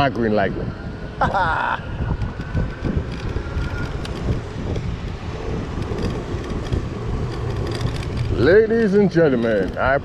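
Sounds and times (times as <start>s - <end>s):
road and traffic noise: 0.0s - 10.0s
wind on microphone: 0.0s - 10.0s
small clicks and rattles: 2.1s - 10.0s.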